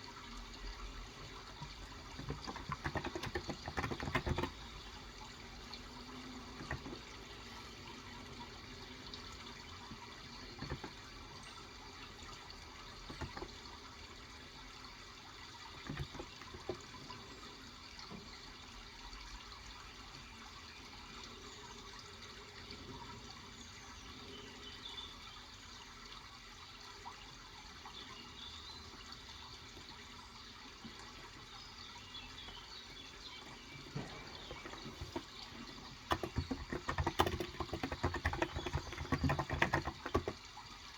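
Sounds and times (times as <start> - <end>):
running water: 0.0 - 40.9
keyboard key clicks: 2.2 - 4.6, 36.1 - 40.4.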